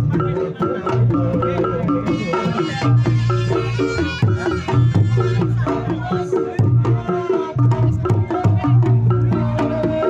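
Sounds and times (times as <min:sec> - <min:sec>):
reedy wind instrument melody: 0:02.0 - 0:06.2.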